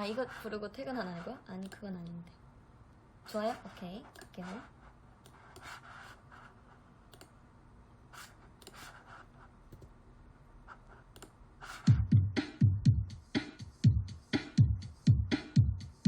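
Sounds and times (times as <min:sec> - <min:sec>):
drum machine backing track: 0:11.7 - 0:16.0.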